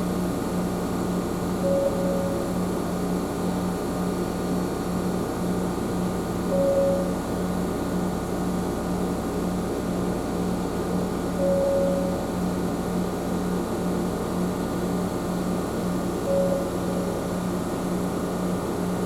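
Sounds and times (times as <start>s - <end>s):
brief higher tone: 1.6s - 2.6s, 6.5s - 7.3s, 11.4s - 12.3s, 16.2s - 17.4s.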